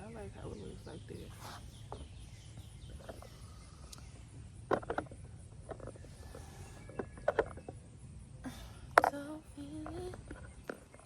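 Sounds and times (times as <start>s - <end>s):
low outdoor rumble: 0.0s - 11.0s
faint ticks: 3.0s - 5.1s, 8.9s - 11.0s.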